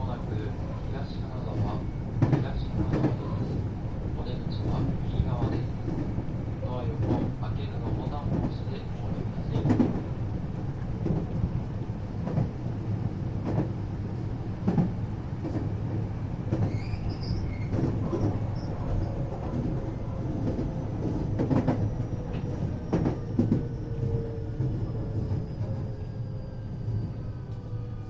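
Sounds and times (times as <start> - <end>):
train running rumble: 0.0 - 26.0
high squeals: 16.7 - 17.7.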